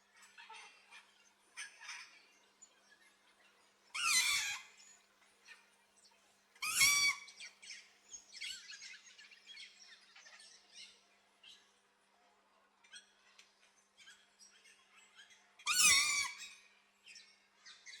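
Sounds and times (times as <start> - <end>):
harsh parrot squawks: 4.0 - 4.6, 6.6 - 7.2.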